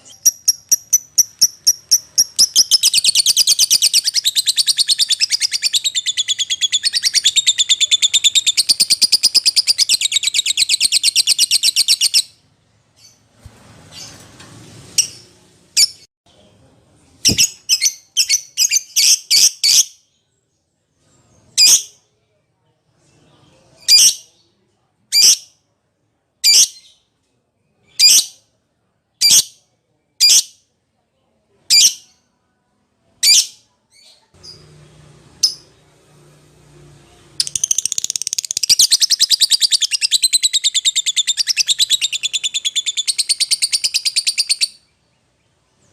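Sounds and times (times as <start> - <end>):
lovebird chattering trill: 0.0 - 12.2.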